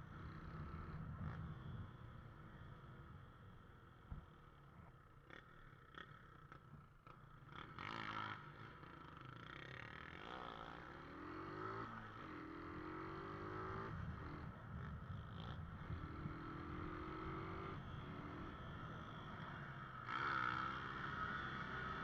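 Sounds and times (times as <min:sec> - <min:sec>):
motorcycle engine accelerating: 0:07.5 - 0:22.0.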